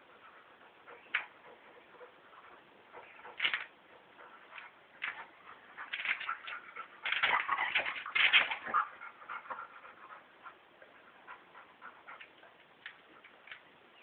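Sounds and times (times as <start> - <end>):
dogs play-wrestling: 0.0 - 13.6.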